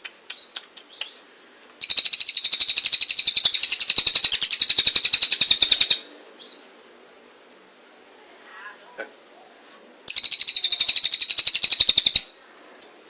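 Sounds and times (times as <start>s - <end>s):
songbird rapid trill: 0.3s - 6.7s, 10.1s - 12.4s.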